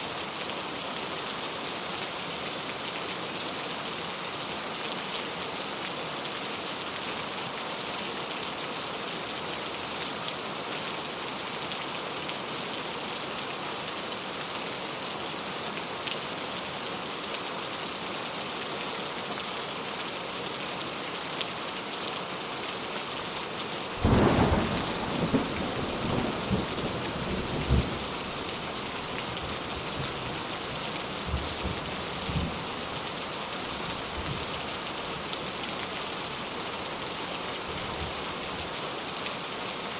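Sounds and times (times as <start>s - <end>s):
rain falling: 0.0s - 39.9s
thunder clap and rumble: 24.0s - 28.2s.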